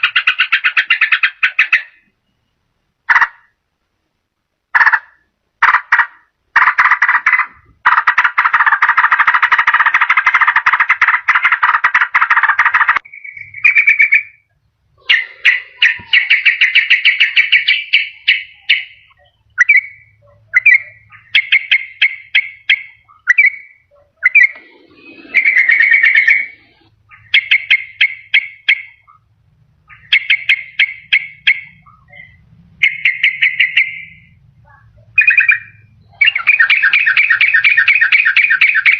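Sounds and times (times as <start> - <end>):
bird chattering and calling: 0.0 - 2.2, 4.8 - 38.9.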